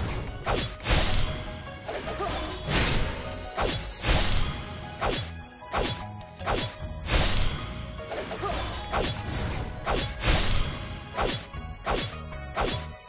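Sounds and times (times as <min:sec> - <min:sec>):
sharp swishing strikes: 0:00.4 - 0:12.9.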